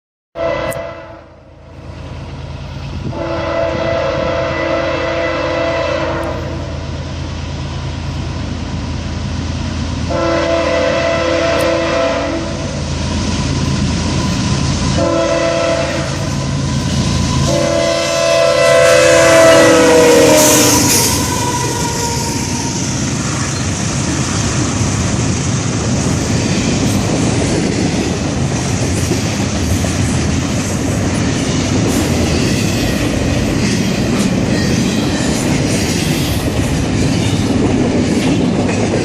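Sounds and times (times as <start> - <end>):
locomotive horn blasts: 0.4 - 1.4, 3.0 - 6.8, 10.1 - 12.8, 14.9 - 16.6, 17.4 - 22.8
train rumble: 0.4 - 39.0.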